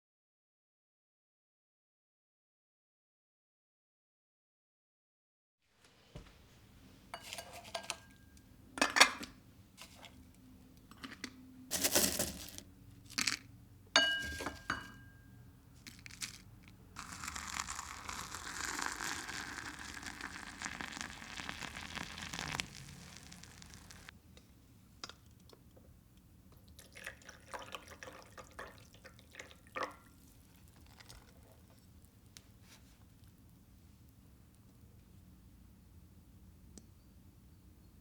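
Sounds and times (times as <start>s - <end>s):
dishes and glassware clinking: 7.2s - 9.3s, 14.0s - 15.3s
water running from a tap: 18.4s - 24.1s.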